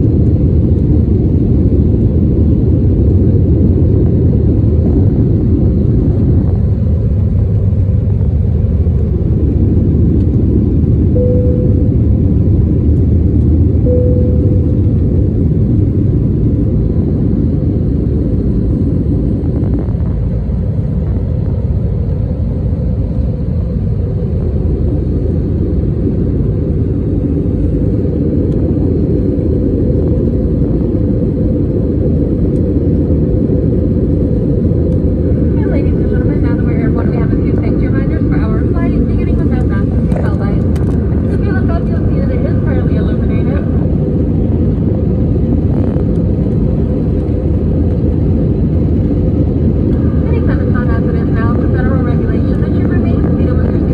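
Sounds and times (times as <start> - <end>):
jet engine rumble: 0.0 - 53.9
brief steady tones: 11.1 - 12.0, 13.8 - 14.9.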